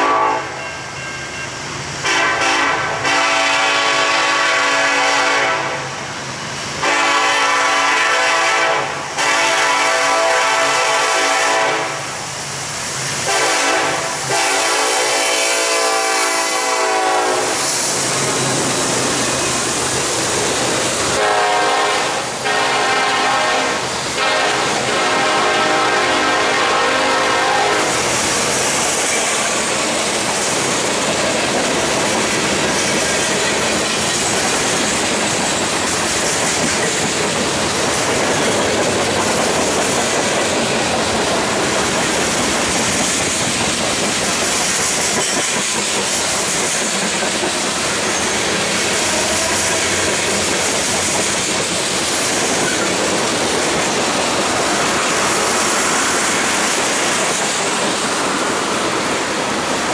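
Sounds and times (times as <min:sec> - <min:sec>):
steel wheels rolling on rail: 0:00.0 - 0:59.9
high hiss: 0:12.0 - 0:14.5, 0:16.0 - 0:21.4, 0:27.7 - 0:36.0.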